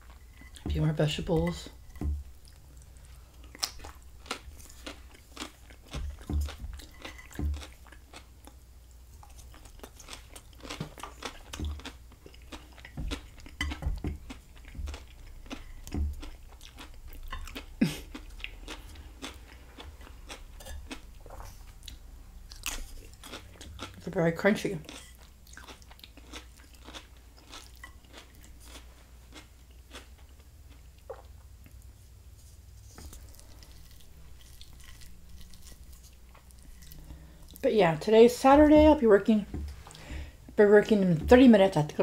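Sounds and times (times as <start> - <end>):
crunchy vegetable chewing: 1.4 - 31.8, 32.8 - 37.7.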